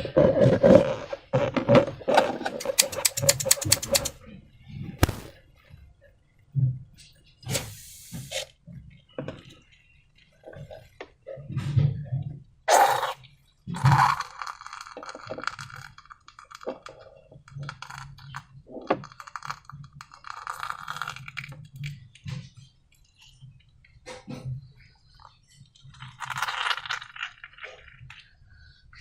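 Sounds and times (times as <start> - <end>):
sharp knocks: 5.0 - 5.3.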